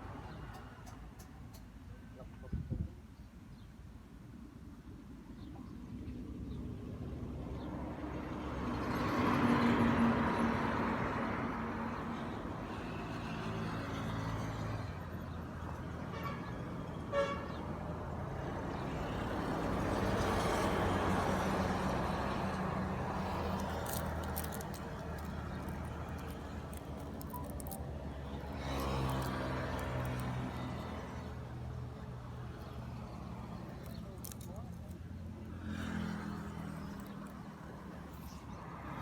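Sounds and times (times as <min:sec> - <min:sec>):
vehicles passing on road: 0:00.0 - 0:02.8, 0:04.5 - 0:39.0
car horn toot: 0:17.1 - 0:17.6.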